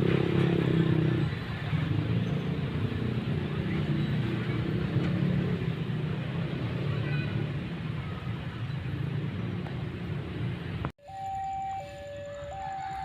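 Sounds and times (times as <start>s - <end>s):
two-tone electronic alarm: 11.0s - 13.0s.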